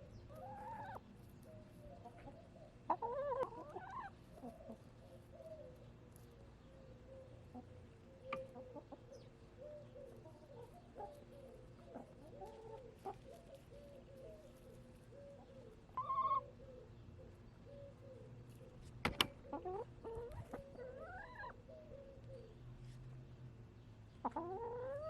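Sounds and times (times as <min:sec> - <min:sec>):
hens clucking: 0:00.0 - 0:05.8, 0:06.9 - 0:16.6, 0:19.2 - 0:21.7, 0:24.2 - 0:25.0
hen calling: 0:00.3 - 0:01.0, 0:08.2 - 0:16.9, 0:19.4 - 0:22.0.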